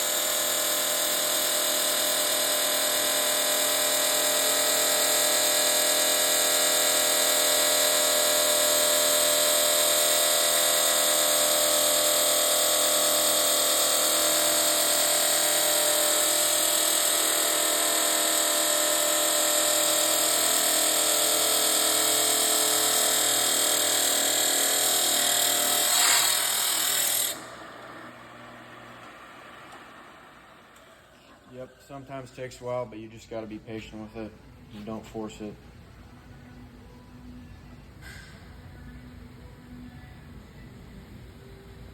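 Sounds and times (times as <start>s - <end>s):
chop saw cutting metal: 0.0s - 29.1s.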